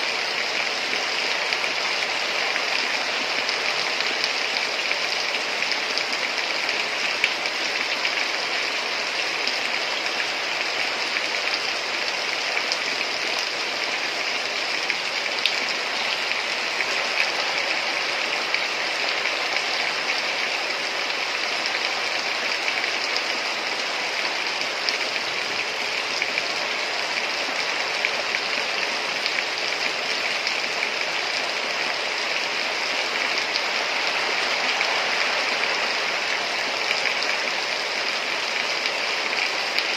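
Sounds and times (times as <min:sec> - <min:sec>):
heavy rain hiss: 0:00.0 - 0:39.9
rain drops ticking: 0:00.0 - 0:39.9.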